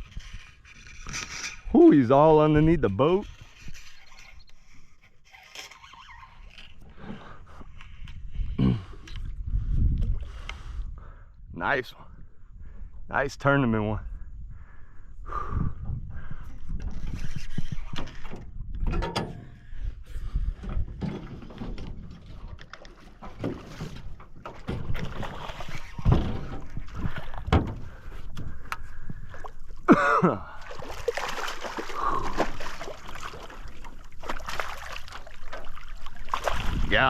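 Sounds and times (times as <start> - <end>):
water splashing: 22.2 - 27.5, 30.4 - 37.0
knocks against a boat: 27.4 - 27.9.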